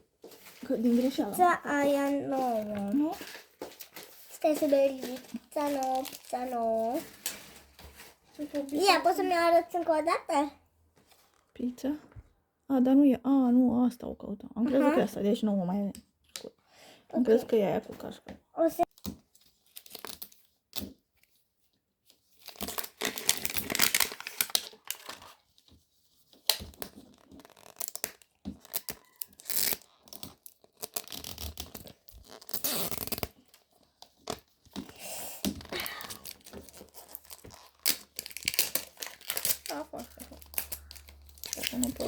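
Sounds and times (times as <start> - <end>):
plastic wrappers tearing and crinkling: 0.3 - 9.4, 19.3 - 20.6, 22.2 - 25.6, 26.3 - 42.0.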